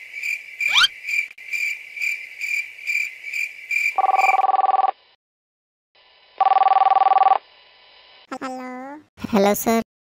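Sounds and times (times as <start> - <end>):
crickets chirping: 0.0 - 4.8
electronic telephone ring: 4.0 - 5.0, 6.4 - 7.4.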